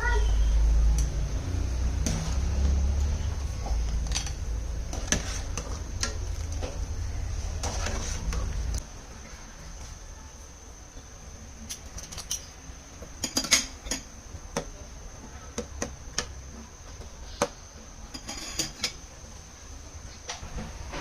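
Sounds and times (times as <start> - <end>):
utensils clinking on dishes: 11.7 - 12.6, 13.2 - 14.1, 18.1 - 19.0.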